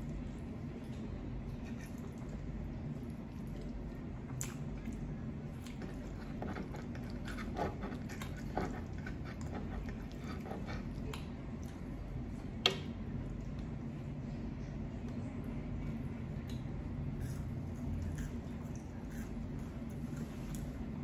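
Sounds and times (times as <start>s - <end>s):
chewing and mouth sounds: 0.0s - 12.1s, 16.4s - 20.7s
low steady hum: 0.0s - 21.0s.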